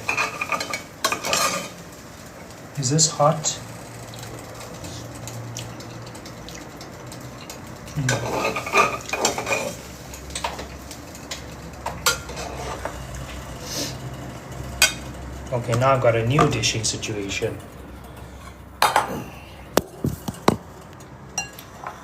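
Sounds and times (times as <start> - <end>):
utensils clinking against dishes: 0.0 - 1.8, 5.8 - 13.0, 21.0 - 22.0.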